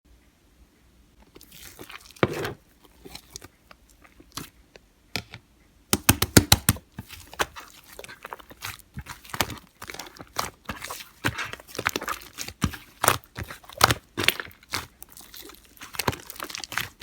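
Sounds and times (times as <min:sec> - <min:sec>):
slime squished by hand: 0:01.2 - 0:04.6, 0:05.9 - 0:17.0
sticky clicks and pops: 0:06.0 - 0:06.8.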